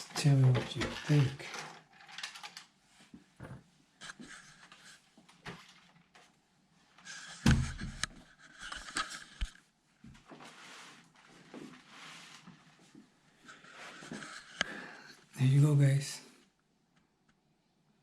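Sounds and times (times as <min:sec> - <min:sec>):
handling clicks and rustling: 0:00.0 - 0:02.8.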